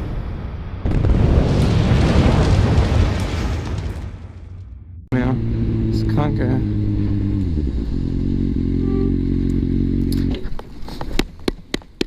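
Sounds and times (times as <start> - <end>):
vehicle engine running: 5.1 - 10.8.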